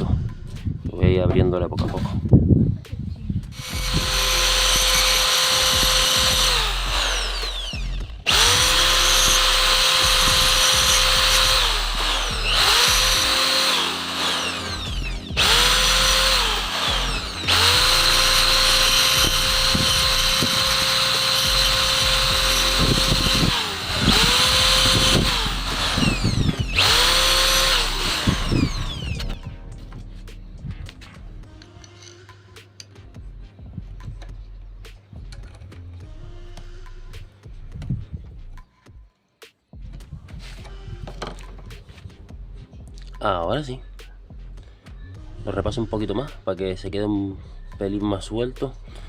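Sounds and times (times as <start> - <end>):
power tool whining and grinding: 3.6 - 29.5.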